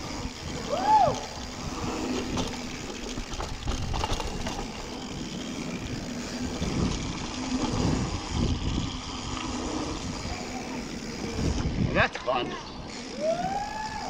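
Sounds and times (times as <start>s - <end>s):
bike rattling and knocking: 0.0s - 14.0s
bike tyres rumbling on dirt: 0.0s - 14.0s.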